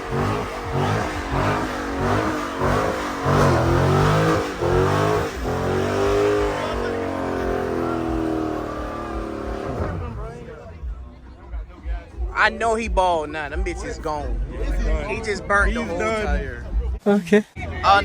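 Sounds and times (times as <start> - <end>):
tires spinning in burnout: 0.0 - 11.0
car engine revving: 0.0 - 17.0.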